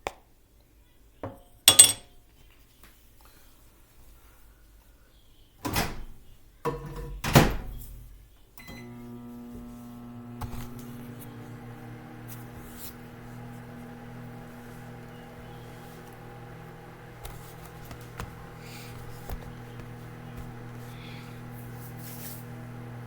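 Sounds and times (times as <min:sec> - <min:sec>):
microwave oven humming: 0:08.6 - 0:23.0.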